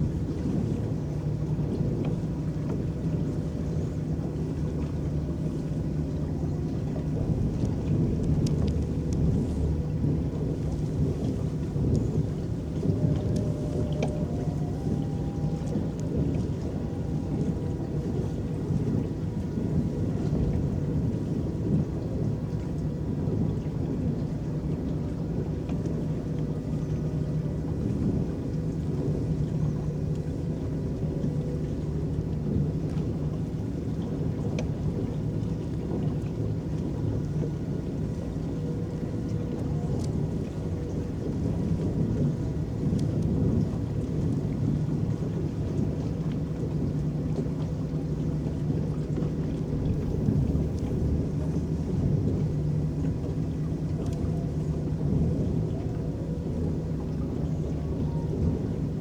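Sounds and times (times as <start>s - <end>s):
water churning along hull: 0.0s - 59.0s
faint steady tones: 2.7s - 21.2s.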